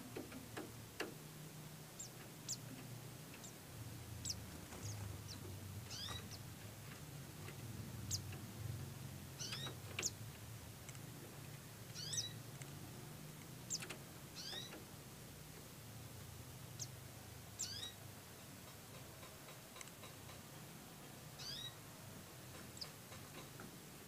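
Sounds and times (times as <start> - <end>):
low steady hum: 0.0 - 18.7
high bird chirps: 4.2 - 6.4, 9.4 - 10.2, 12.0 - 12.4, 13.7 - 14.8, 17.6 - 18.0, 21.4 - 21.8.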